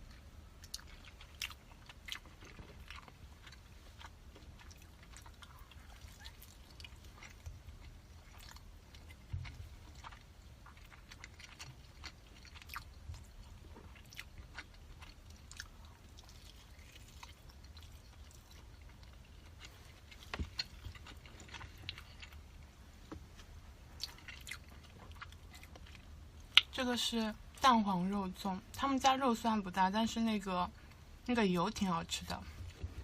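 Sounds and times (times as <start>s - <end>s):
chewing mouth sounds: 0.0s - 22.7s, 24.0s - 26.7s.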